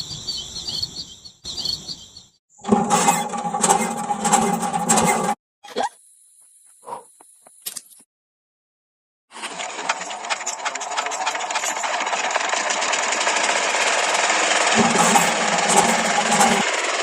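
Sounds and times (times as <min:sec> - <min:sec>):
small model engine clattering: 0:02.7 - 0:05.4, 0:09.4 - 0:17.0
low hum: 0:14.7 - 0:16.7.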